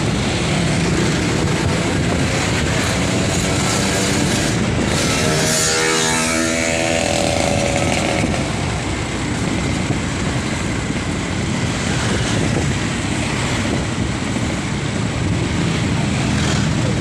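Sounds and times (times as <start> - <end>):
motorcycle engine running: 0.0 - 17.0
road noise rumble: 0.0 - 17.0
buzzing pitched tone: 4.9 - 8.4.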